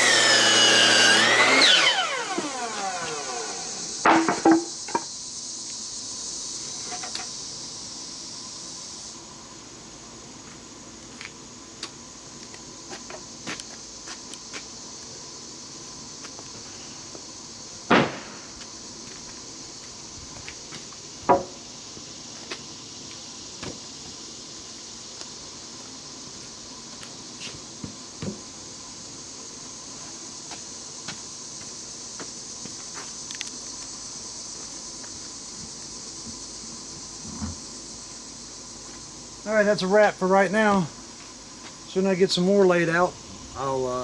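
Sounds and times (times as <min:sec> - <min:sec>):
steady high hiss: 0:00.0 - 0:44.0
loud single knocks: 0:17.9 - 0:18.5.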